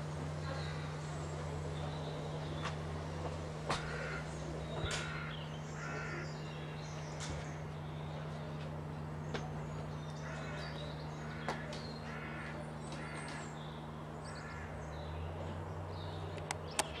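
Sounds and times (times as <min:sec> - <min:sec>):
steady low hum: 0:00.0 - 0:17.0
harsh caw-like bird calls: 0:00.4 - 0:01.1, 0:03.7 - 0:06.7, 0:10.1 - 0:14.9.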